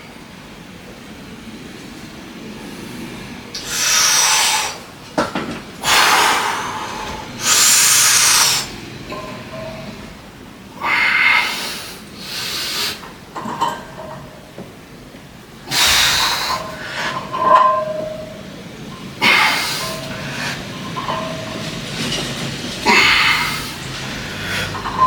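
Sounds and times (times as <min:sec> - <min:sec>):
person breathing hard: 0:22.8 - 0:24.8.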